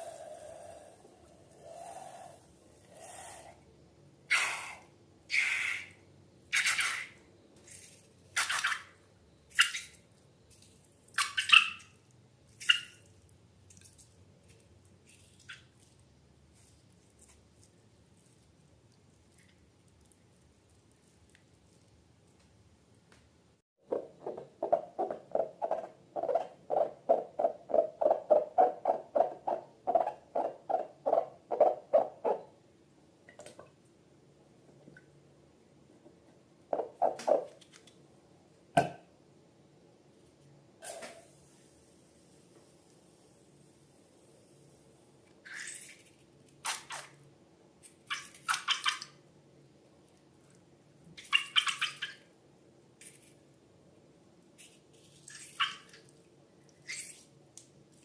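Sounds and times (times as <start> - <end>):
slime squishing wetly: 12.5 - 22.6.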